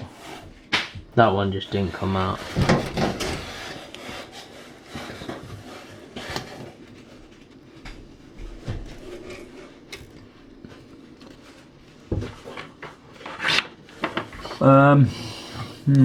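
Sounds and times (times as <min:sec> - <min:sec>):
hard parts knocking and rattling: 0:02.3 - 0:03.9.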